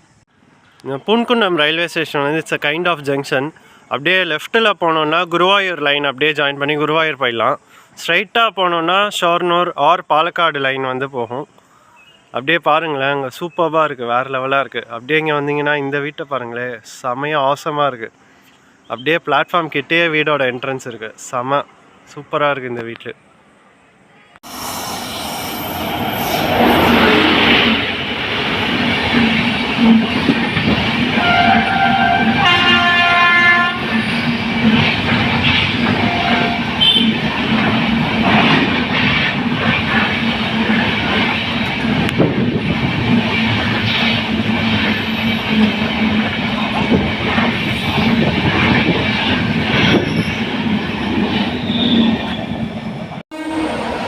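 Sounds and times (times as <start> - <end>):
locomotive horn: 31.1 - 34.2, 36.0 - 37.2, 53.3 - 53.9
train wheels clattering: 33.8 - 52.4.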